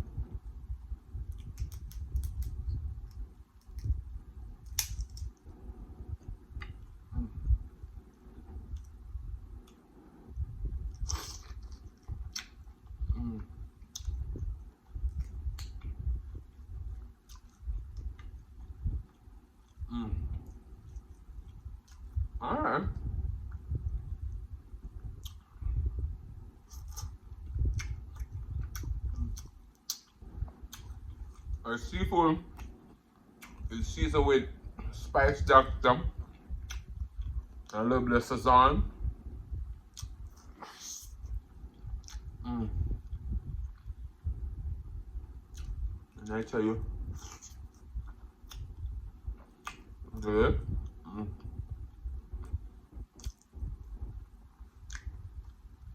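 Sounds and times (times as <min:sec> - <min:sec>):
wet chewing sounds: 0:10.7 - 0:22.3, 0:23.5 - 0:25.6, 0:26.4 - 0:31.6, 0:32.5 - 0:33.7, 0:36.2 - 0:37.8, 0:39.6 - 0:44.4, 0:45.4 - 0:46.3, 0:47.0 - 0:55.9
small mouth clicks: 0:26.7 - 0:31.5, 0:36.5 - 0:37.4, 0:39.9 - 0:43.9, 0:45.5 - 0:45.8, 0:47.1 - 0:49.0, 0:49.6 - 0:49.9, 0:52.4 - 0:53.7, 0:54.8 - 0:55.6.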